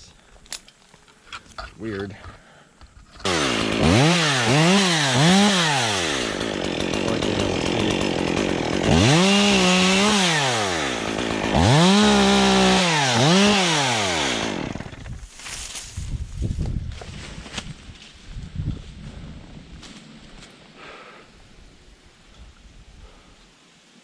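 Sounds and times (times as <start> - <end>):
chainsaw revving: 3.2 - 15.2
chainsaw cutting wood: 3.2 - 15.3.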